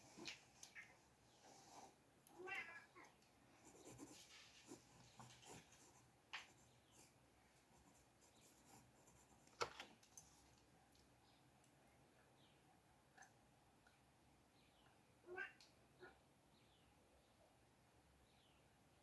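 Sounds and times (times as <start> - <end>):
cat meowing: 2.3 - 3.1, 15.2 - 16.2.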